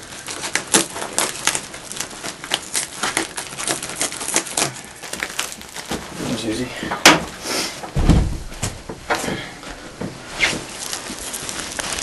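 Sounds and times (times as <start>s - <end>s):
plastic crinkling: 0.0s - 6.7s, 9.6s - 12.0s.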